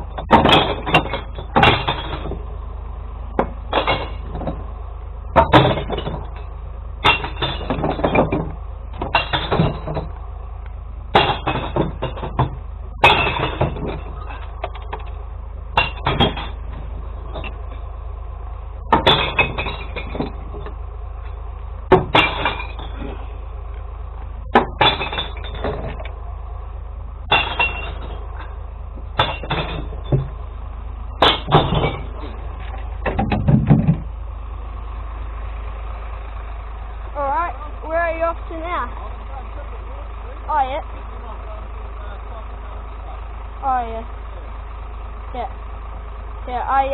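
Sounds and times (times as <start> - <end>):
truck engine humming: 0.0 - 46.9
glass bottles smashing: 7.0 - 8.4, 9.1 - 10.1, 13.0 - 14.4, 19.0 - 20.3, 21.9 - 23.0, 24.6 - 26.0, 27.3 - 28.5, 29.2 - 30.3, 31.2 - 32.2.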